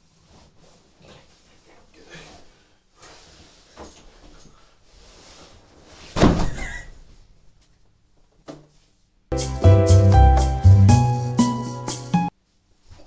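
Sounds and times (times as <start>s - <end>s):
bedding rustling: 0.0s - 9.2s.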